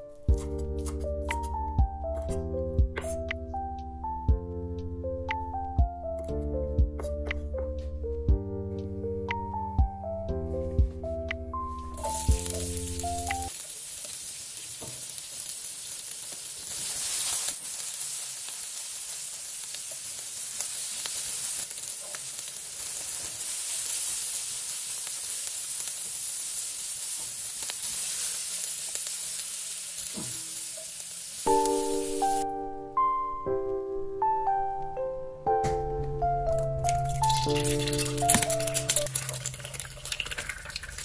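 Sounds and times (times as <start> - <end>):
vegetables sizzling in oil: 12.0 - 32.4.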